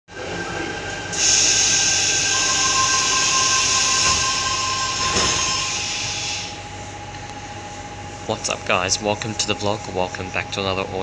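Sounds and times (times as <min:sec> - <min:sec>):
electric train running: 0:00.2 - 0:06.7
loud hiss: 0:01.2 - 0:06.6
high squealing tones: 0:01.8 - 0:05.9.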